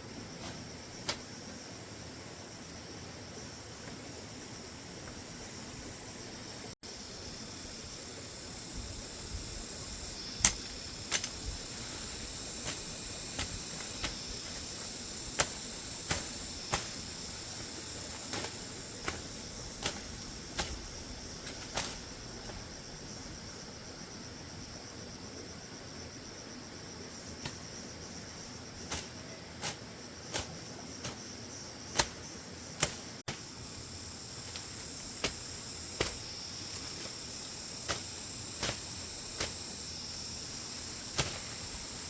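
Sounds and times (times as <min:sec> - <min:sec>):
insects chirring: 0:00.0 - 0:42.0.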